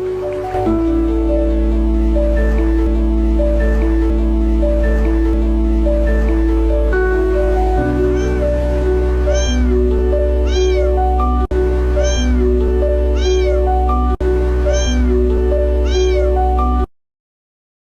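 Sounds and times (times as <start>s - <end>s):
background music: 0.0s - 16.9s
cat meowing: 8.0s - 8.6s, 9.2s - 9.8s, 10.4s - 11.1s, 12.0s - 12.4s, 13.1s - 13.8s, 14.7s - 15.1s, 15.8s - 16.4s.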